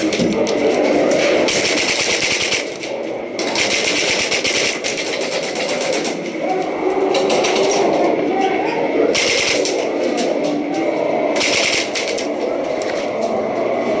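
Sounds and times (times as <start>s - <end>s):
airsoft guns firing on full auto: 1.4s - 6.2s, 9.2s - 9.8s, 11.4s - 12.3s.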